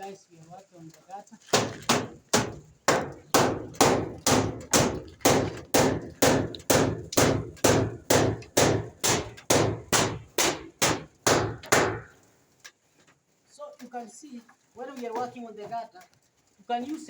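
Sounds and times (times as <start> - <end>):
hammer striking: 1.5 - 12.1.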